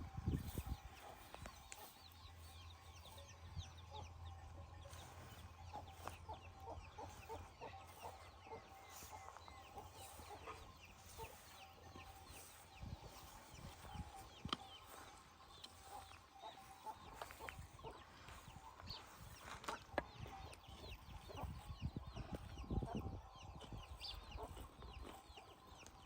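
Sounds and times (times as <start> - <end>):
hens clucking: 0.0 - 26.0
small birds chirping: 0.0 - 26.0.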